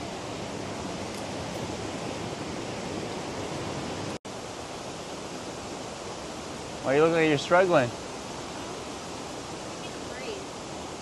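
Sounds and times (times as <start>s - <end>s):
fast-flowing water rushing: 0.0s - 11.0s.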